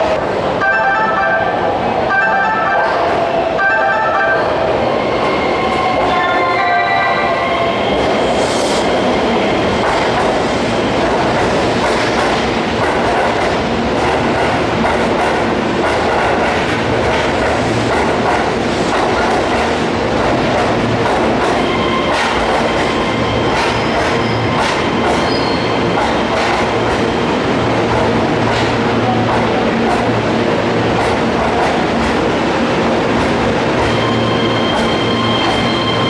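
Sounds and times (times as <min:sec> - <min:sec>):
train wheels rumbling on rails: 0:07.2 - 0:36.0.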